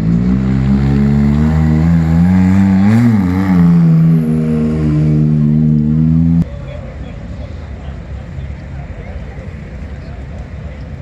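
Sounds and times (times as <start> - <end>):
engine idling and revving: 0.0 - 6.8.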